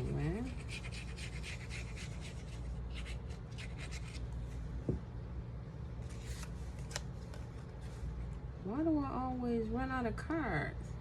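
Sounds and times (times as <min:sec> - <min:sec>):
steady low hum: 0:00.0 - 0:11.0
card stock rustling and sliding: 0:06.0 - 0:08.0.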